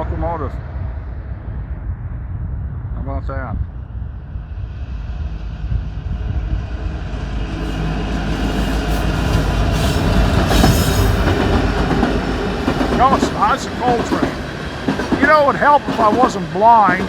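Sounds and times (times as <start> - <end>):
diesel locomotives rumbling: 3.8 - 17.0
train wheels on rails: 6.1 - 17.0.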